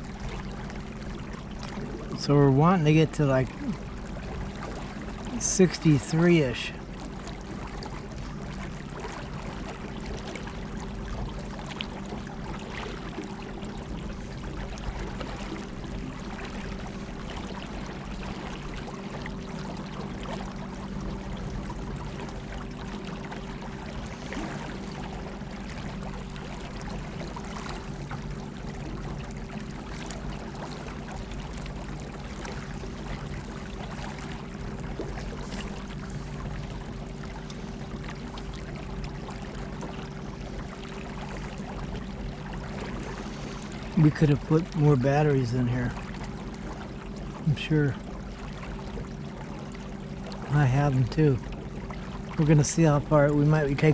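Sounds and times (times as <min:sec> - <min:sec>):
water splashing along boat hull: 0:00.0 - 0:53.9.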